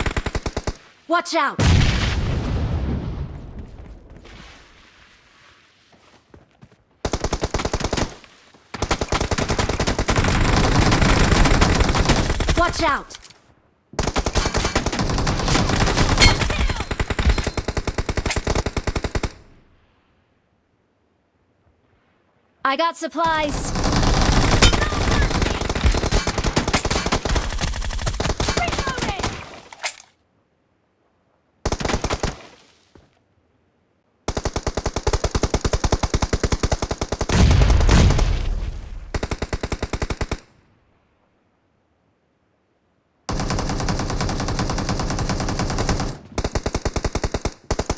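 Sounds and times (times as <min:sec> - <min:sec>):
video game automatic gunfire: 0:23.5 - 0:29.4.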